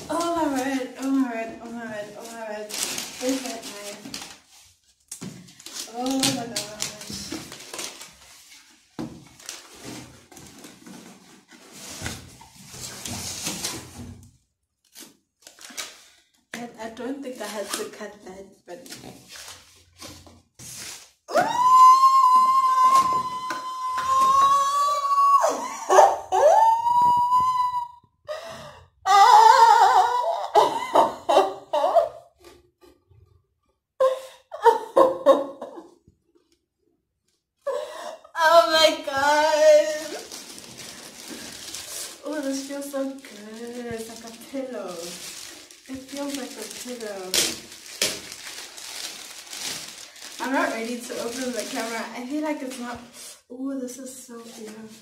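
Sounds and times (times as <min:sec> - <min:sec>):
woman's wordless high voice: 0:00.0 - 0:04.2, 0:05.9 - 0:07.5, 0:16.6 - 0:19.0, 0:38.3 - 0:40.3, 0:42.2 - 0:45.2, 0:45.9 - 0:47.6, 0:50.4 - 0:55.0
cardboard and plastic rustling: 0:00.0 - 0:16.4, 0:18.7 - 0:21.3, 0:39.1 - 0:53.2, 0:54.3 - 0:55.0.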